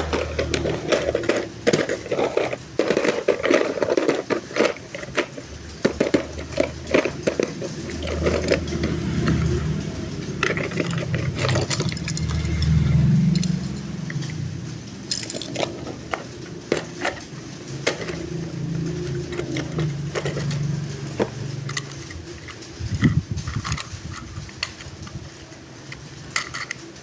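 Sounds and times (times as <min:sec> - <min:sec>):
low steady hum: 0:00.0 - 0:26.8
toy packaging clicks and scrapes: 0:00.0 - 0:27.0.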